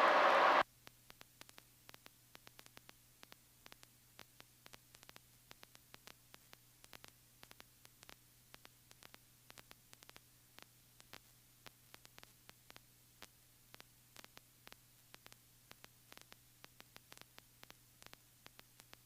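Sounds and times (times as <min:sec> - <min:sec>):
steady low hum: 0:00.0 - 0:00.6
faint electrical static: 0:00.0 - 0:19.0.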